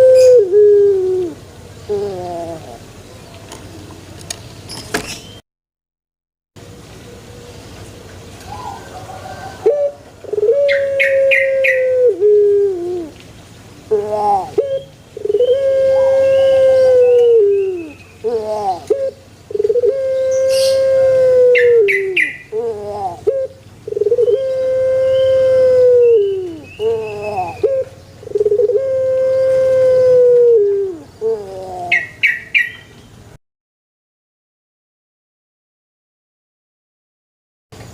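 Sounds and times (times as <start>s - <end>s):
dove cooing: 0.0s - 2.9s, 8.4s - 13.2s, 13.9s - 32.7s.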